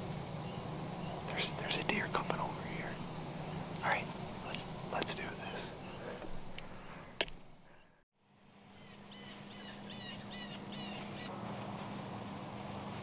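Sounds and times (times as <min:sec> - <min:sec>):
faint steady hum: 0:00.0 - 0:13.0
bird chirping: 0:00.3 - 0:08.0, 0:08.8 - 0:11.3.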